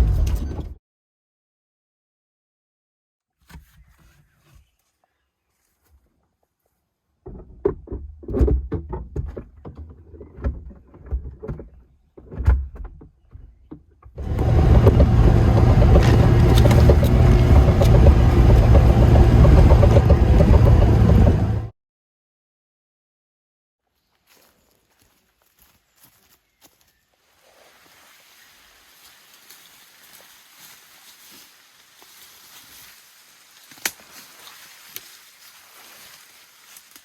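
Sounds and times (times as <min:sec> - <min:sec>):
car knocks and bumps: 0:14.2 - 0:21.7
engine and road noise rumble: 0:14.2 - 0:21.7.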